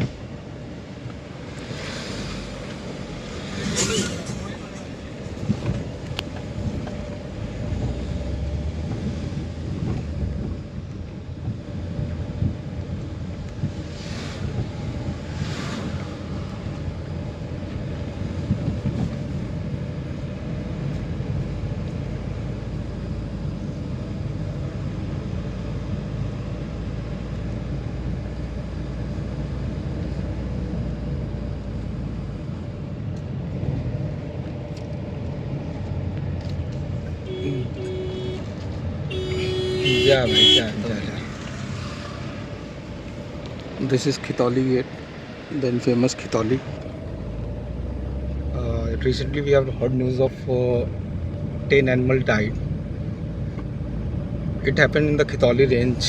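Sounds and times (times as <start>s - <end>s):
car engine and tyre rumble: 0.0s - 56.0s
wind noise on microphone: 8.8s - 17.1s, 17.9s - 20.1s.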